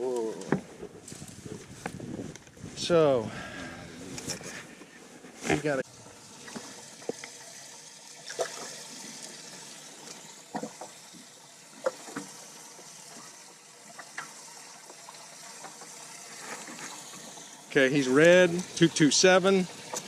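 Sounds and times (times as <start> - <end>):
water pouring and splashing: 5.4 - 20.0.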